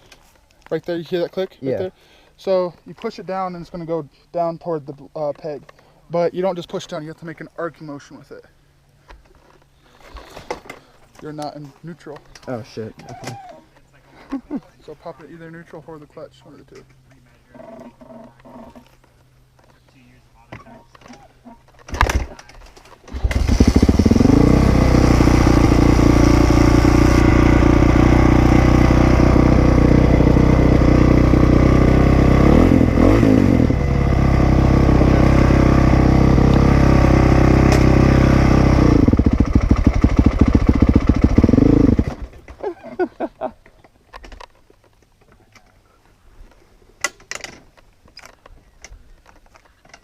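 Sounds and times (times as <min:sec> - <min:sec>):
dirt bike engine idling: 0:23.2 - 0:43.2.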